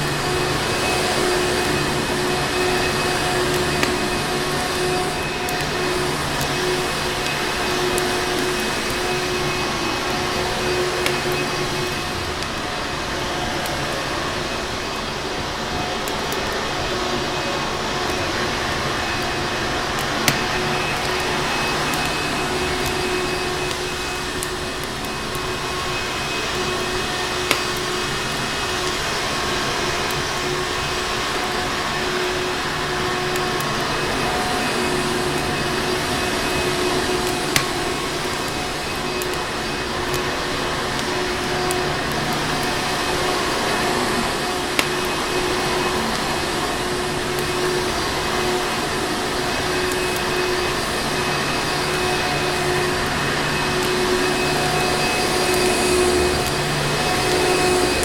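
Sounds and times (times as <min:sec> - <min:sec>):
fireplace fire crackling pops: 0:00.0 - 0:58.0
vacuum cleaner running: 0:00.0 - 0:58.0.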